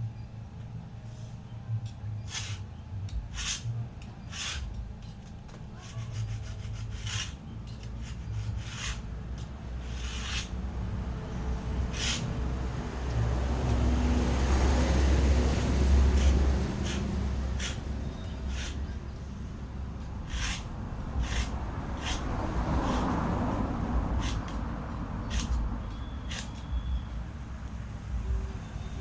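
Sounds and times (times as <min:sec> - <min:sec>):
hand tool scraping wood: 0:02.3 - 0:02.6, 0:03.2 - 0:10.6, 0:11.7 - 0:12.5, 0:15.3 - 0:19.0, 0:20.0 - 0:23.6, 0:24.2 - 0:24.6, 0:25.2 - 0:25.6, 0:26.2 - 0:26.7.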